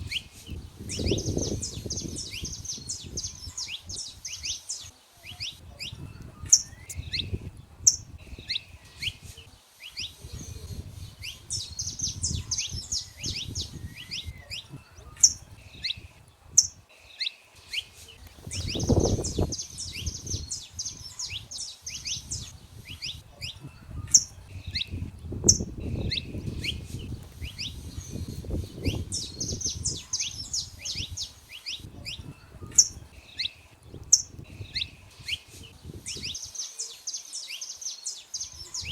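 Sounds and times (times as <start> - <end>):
finches singing: 0.0 - 38.9.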